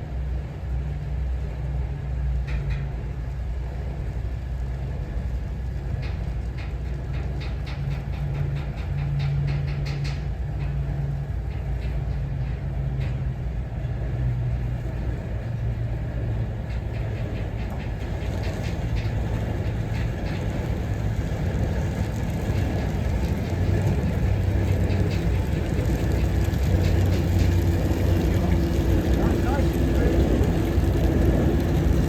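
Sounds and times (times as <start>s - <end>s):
diesel engine droning: 10.8s - 32.0s
rapid clicking: 16.1s - 32.0s.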